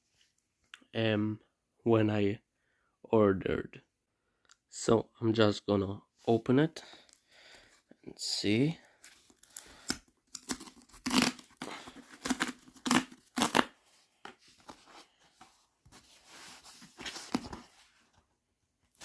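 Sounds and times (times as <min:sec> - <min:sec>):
packaging ripping: 0:09.4 - 0:13.7.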